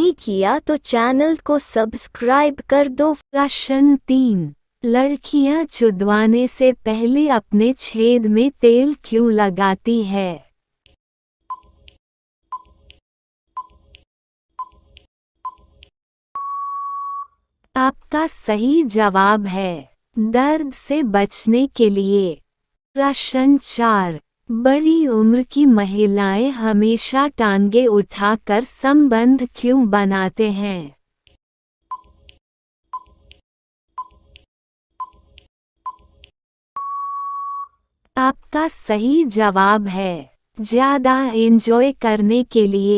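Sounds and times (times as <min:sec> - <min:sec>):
countdown timer beeps: 0:16.4 - 0:17.3, 0:36.8 - 0:37.7.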